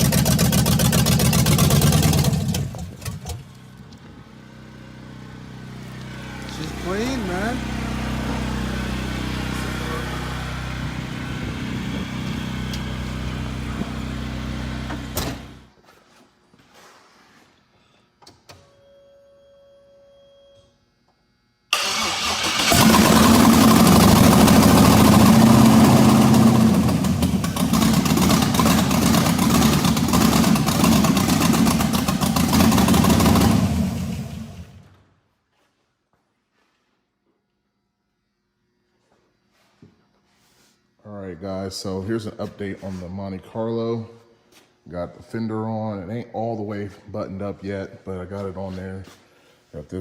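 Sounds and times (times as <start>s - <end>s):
car engine idling and starting: 0.0s - 15.6s, 21.7s - 35.0s.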